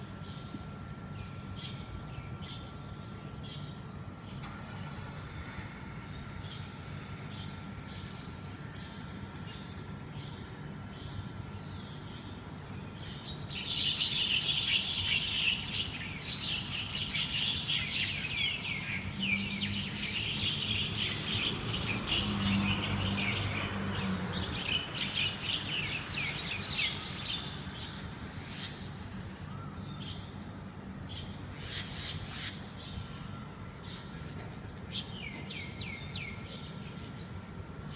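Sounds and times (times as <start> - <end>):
steady low hum: 0.0 - 21.3
birds chirping and chattering: 6.2 - 37.9.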